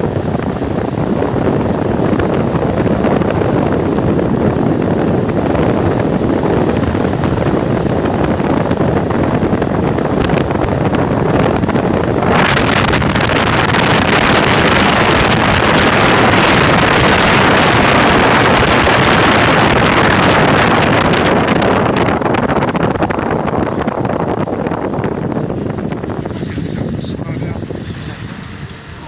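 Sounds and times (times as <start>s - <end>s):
tyres on wet road: 0.0s - 29.0s
vehicle driving in rain: 0.0s - 29.0s
wind: 0.0s - 29.0s.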